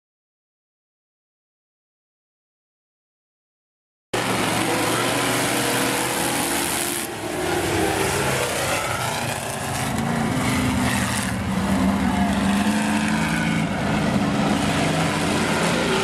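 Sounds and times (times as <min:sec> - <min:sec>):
race car engines running: 0:04.2 - 0:16.0.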